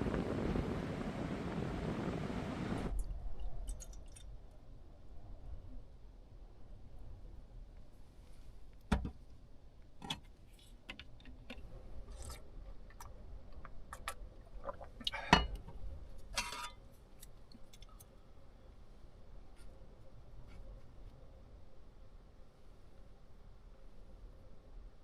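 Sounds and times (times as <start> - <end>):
small clicks and rustles: 15.5 - 18.2.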